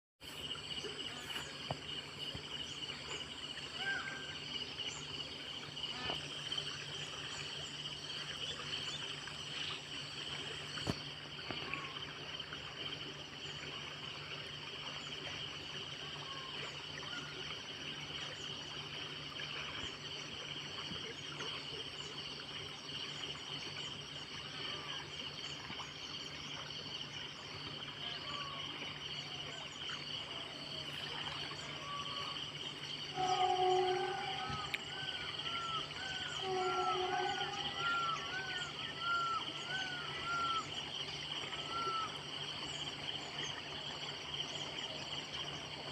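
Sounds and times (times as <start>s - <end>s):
insects buzzing: 0.2s - 12.5s, 30.1s - 43.1s
pulsing insect chirp: 0.2s - 45.9s
low steady hum: 29.2s - 41.9s
steady-pitched tone: 33.1s - 35.6s, 36.4s - 38.3s.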